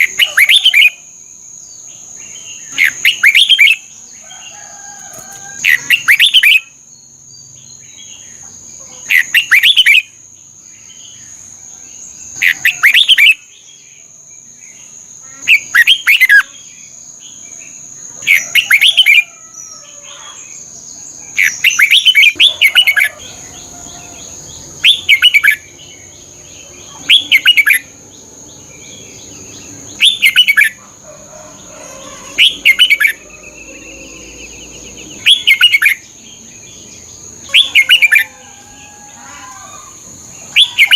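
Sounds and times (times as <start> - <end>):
bird singing whistled phrases: 5.7 - 6.7, 27.0 - 27.8, 35.2 - 36.0.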